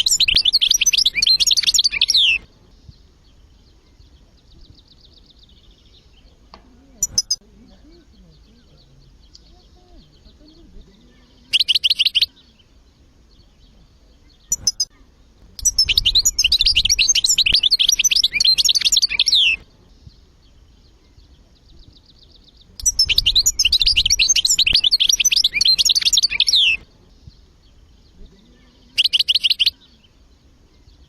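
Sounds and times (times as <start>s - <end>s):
faint high chirping: 0.0s - 31.0s
goldfinch singing: 0.0s - 31.0s.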